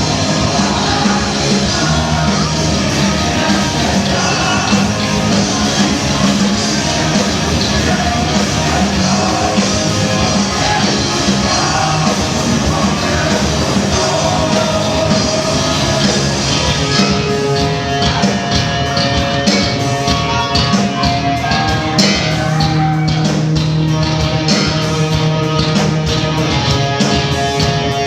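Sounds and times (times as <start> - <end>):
person singing: 0.0 - 23.4
rock band playing live: 0.0 - 28.0.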